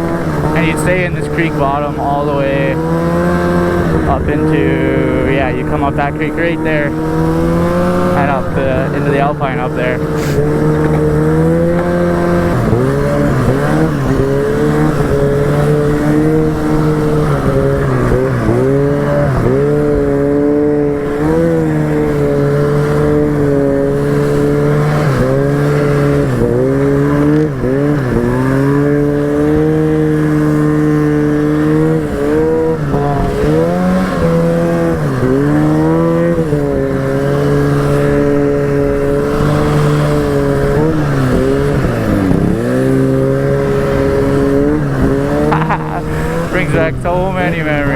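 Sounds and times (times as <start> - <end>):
snowmobile engine running hard: 0.0 - 47.9.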